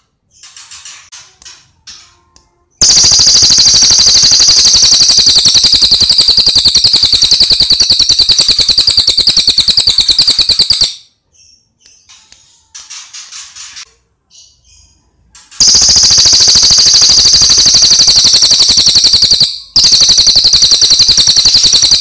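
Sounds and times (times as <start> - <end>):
bird rapid rattling trill: 2.8 - 11.0, 15.6 - 22.0.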